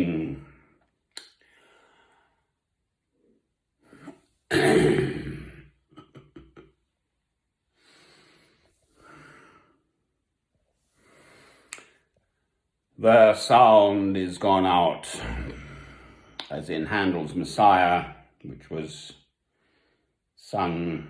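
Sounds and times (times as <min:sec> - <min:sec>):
man breathing: 0:01.4 - 0:02.6, 0:07.7 - 0:10.1, 0:10.9 - 0:12.1, 0:15.1 - 0:16.4, 0:19.4 - 0:20.2
sudden breath or cough: 0:04.0 - 0:05.6.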